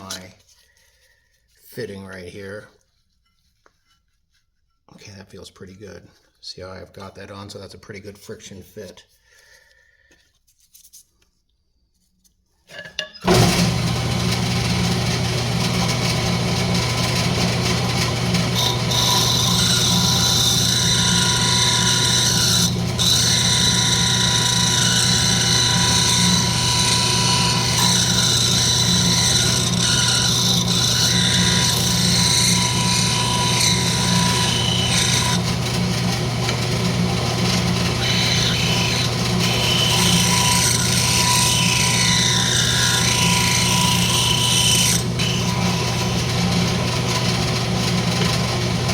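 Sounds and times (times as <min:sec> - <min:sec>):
wood lathe motor hum: 0:13.2 - 0:48.9
turning tool scraping wood: 0:13.3 - 0:48.9.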